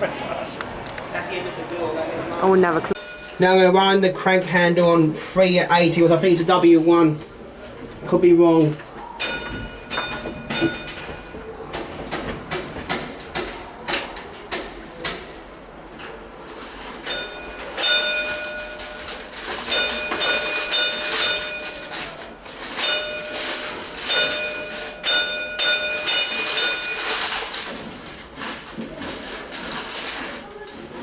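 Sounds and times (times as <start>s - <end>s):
tram warning gong ringing: 3.0s - 4.0s, 9.2s - 11.6s, 22.8s - 27.0s
gong mechanism clattering: 9.2s - 11.8s, 17.0s - 27.8s.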